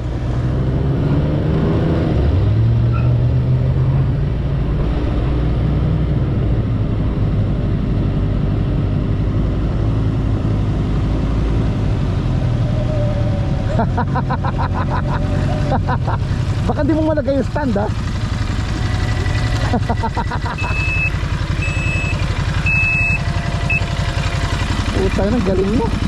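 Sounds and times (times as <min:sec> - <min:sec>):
motorcycle engine running: 0:16.0 - 0:26.0.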